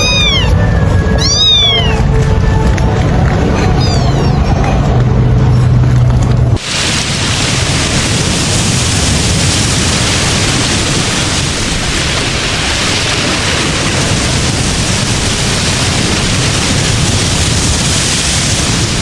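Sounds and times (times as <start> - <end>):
loud rushing noise: 0.0 - 19.0.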